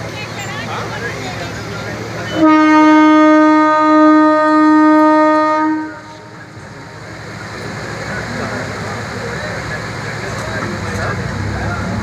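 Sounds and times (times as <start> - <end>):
train running: 0.0 - 12.0
train horn blast: 2.3 - 6.4.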